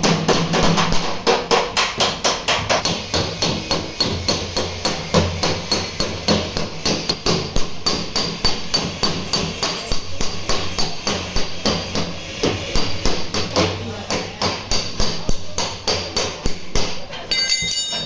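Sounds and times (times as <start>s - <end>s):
hammer on sheet metal: 0.0s - 18.0s.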